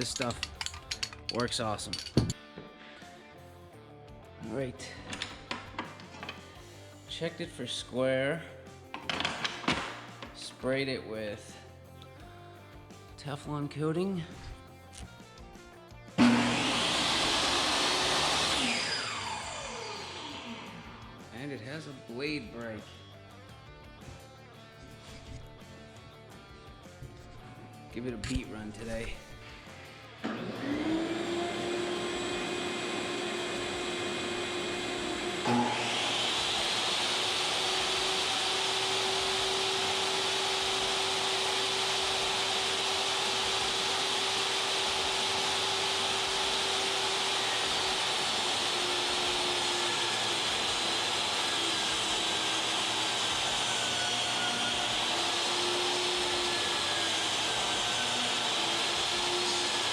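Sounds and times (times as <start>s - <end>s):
table saw motor whine: 5.0s - 7.4s, 16.2s - 21.5s, 30.1s - 59.9s.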